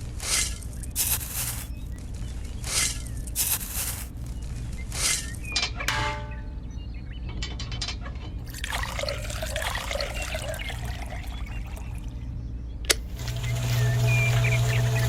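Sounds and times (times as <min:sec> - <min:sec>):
water pouring and trickling: 0:08.4 - 0:12.2, 0:13.1 - 0:15.0.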